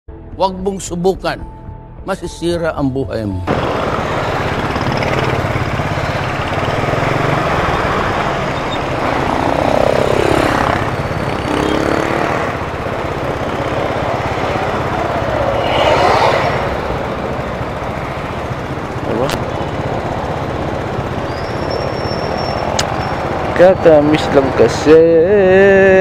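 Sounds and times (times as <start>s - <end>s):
motorcycle engine droning: 3.5s - 26.0s.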